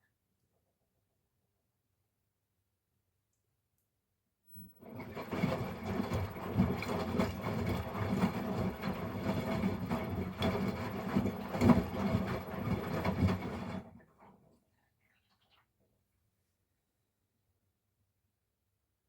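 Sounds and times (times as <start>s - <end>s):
washing machine motor humming: 4.6s - 14.0s.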